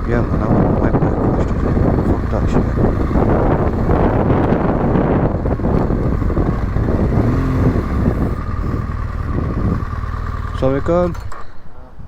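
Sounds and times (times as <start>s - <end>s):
wind rush on microphone: 0.0s - 10.7s
motorcycle engine running: 0.0s - 11.7s.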